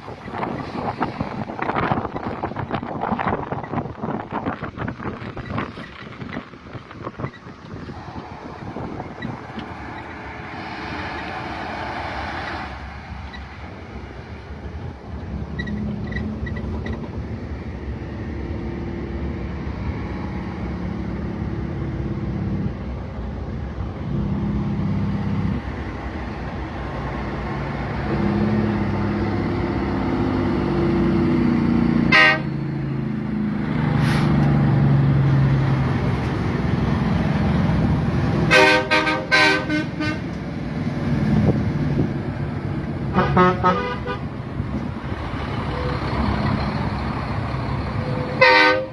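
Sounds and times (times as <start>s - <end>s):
truck diesel engine droning: 0.0s - 48.9s
truck horn toots: 32.1s - 32.6s, 38.4s - 40.4s, 43.1s - 44.3s, 48.1s - 48.9s.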